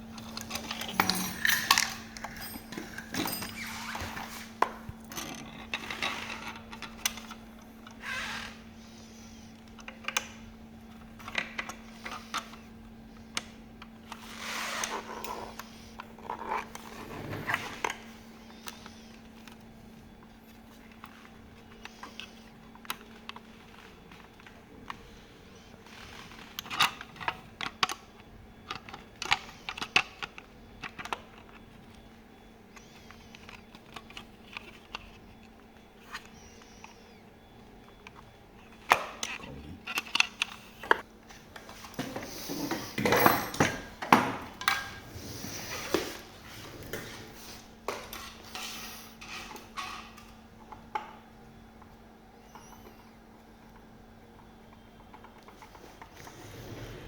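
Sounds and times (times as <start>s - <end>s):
tools clattering and scraping: 0.0s - 8.0s, 41.6s - 50.4s
faint steady hum: 0.0s - 57.0s
plastic and metal parts clicking: 26.4s - 32.0s, 37.8s - 41.0s.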